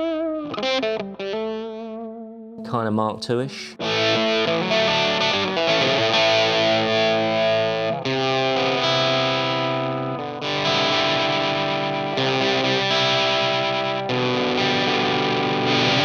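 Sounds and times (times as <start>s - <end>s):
distorted electric guitar chords: 3.8s - 16.0s.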